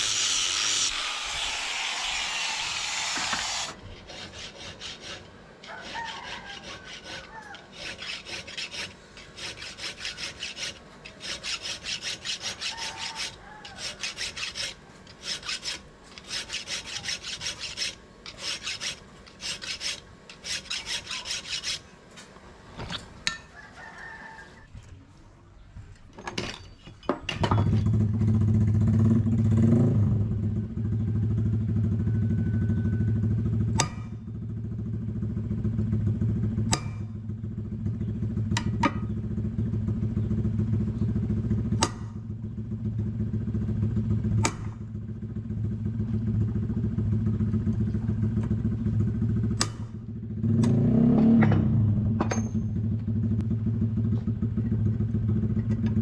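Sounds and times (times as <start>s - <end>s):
rasping tool on steel: 0.0s - 21.9s, 33.8s - 34.2s
rooster crowing: 5.6s - 7.7s, 12.5s - 14.2s, 23.4s - 24.7s, 30.8s - 33.6s.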